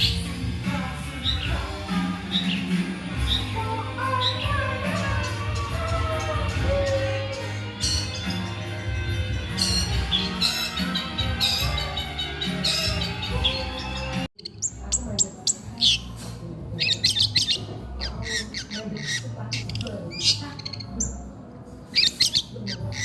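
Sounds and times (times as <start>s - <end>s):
shrike chattering song: 0.0s - 21.2s
music: 0.0s - 23.0s.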